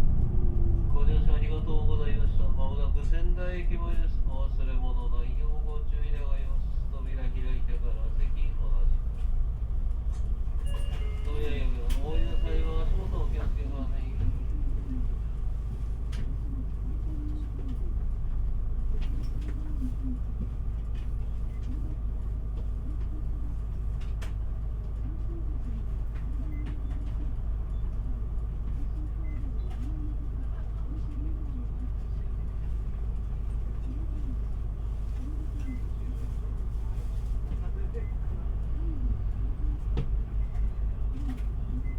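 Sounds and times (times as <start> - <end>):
bus engine rumble: 0.0 - 41.9
low hooting tone: 10.6 - 15.0.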